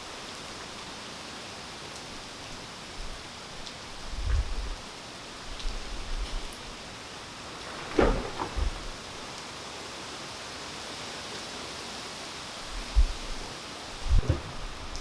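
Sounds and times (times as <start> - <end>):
steady rain falling: 0.0 - 15.0
loud thuds: 7.7 - 9.3, 12.8 - 15.0.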